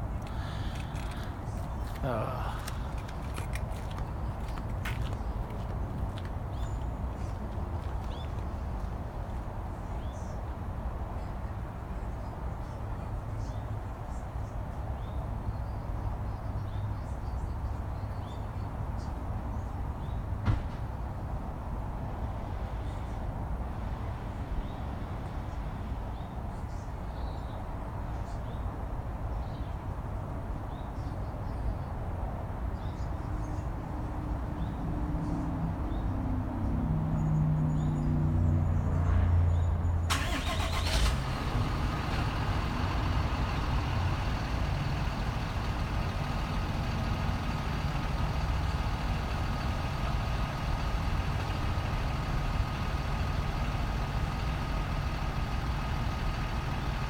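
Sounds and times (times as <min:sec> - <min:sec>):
engine low rumble: 0:00.0 - 0:29.7, 0:32.5 - 0:57.0.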